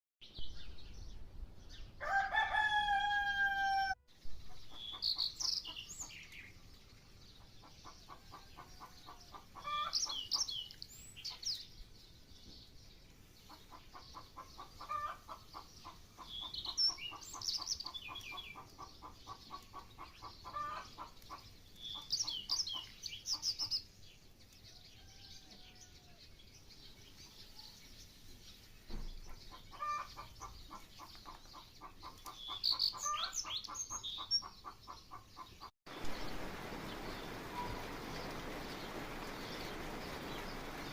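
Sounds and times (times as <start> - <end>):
songbird chirping: 0.2 - 40.9
rooster crowing: 2.0 - 4.0.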